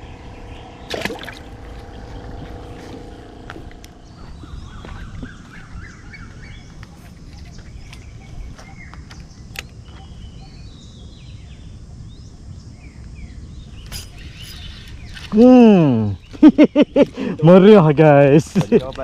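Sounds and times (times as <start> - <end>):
small birds chirping: 0.0 - 19.0
steady low rumble: 0.0 - 19.0.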